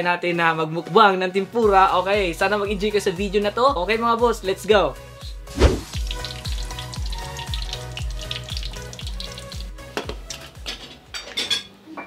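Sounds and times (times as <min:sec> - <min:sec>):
background music with beat: 0:01.6 - 0:11.2
food sizzling in hot oil: 0:05.4 - 0:10.9.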